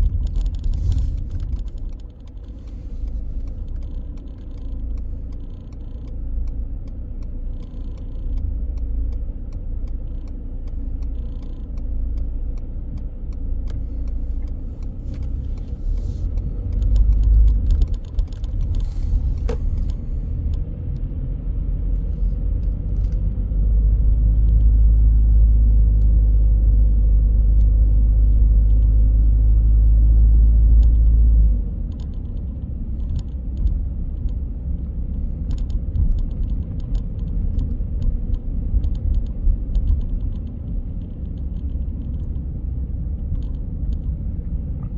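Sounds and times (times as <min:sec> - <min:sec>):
light clicks and rattles: 0:00.0 - 0:21.1, 0:31.8 - 0:44.9
car tyres and engine rumble: 0:00.0 - 0:44.9.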